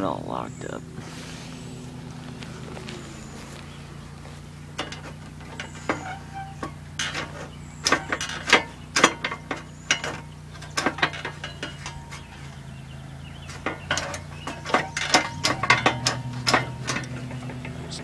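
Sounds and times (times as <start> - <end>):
lawn mower engine running: 0.0 - 18.0
metallic clicks and clanks: 3.8 - 18.0.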